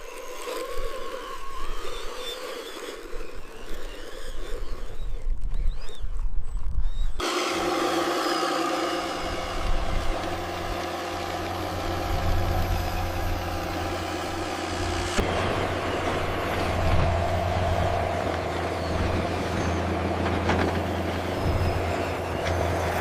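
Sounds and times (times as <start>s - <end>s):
truck engine idling: 9.0s - 23.0s.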